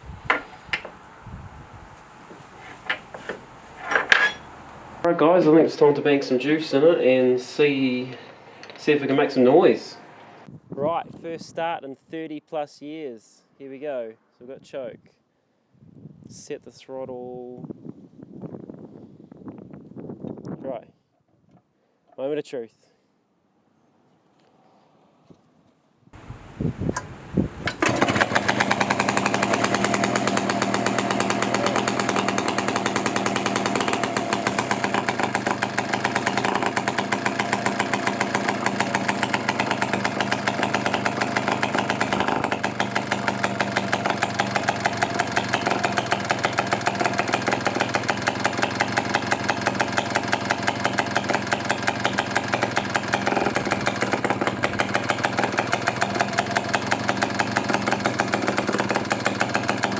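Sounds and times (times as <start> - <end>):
two-stroke chainsaw engine running: 27.6 - 59.9.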